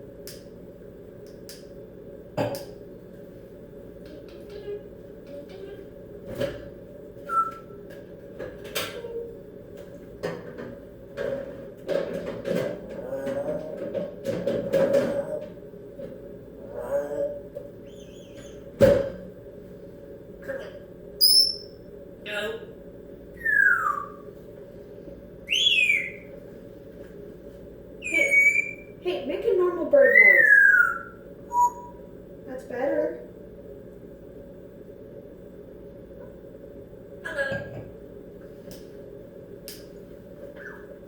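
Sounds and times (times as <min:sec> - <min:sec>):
parrot whistling: 0:07.3 - 0:07.8, 0:17.8 - 0:18.7, 0:21.2 - 0:21.8, 0:23.4 - 0:24.3, 0:25.4 - 0:26.3, 0:28.0 - 0:29.0, 0:29.9 - 0:32.1.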